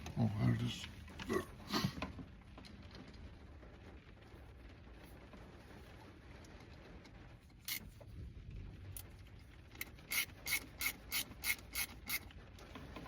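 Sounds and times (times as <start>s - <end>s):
ratcheting hand tool clicking: 9.8s - 12.3s.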